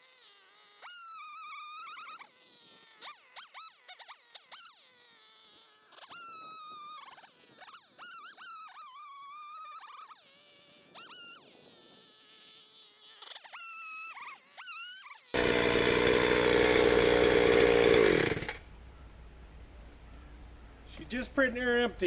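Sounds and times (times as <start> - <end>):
gas chainsaw running: 15.3 - 18.6.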